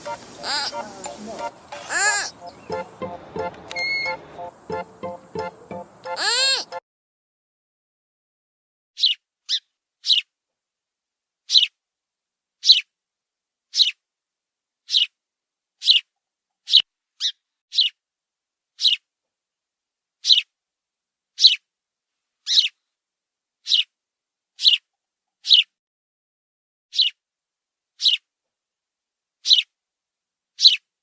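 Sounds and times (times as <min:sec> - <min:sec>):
animal high-pitched calls: 0:00.0 - 0:03.0, 0:03.7 - 0:04.2, 0:06.1 - 0:06.8, 0:22.5 - 0:22.8, 0:24.6 - 0:24.8.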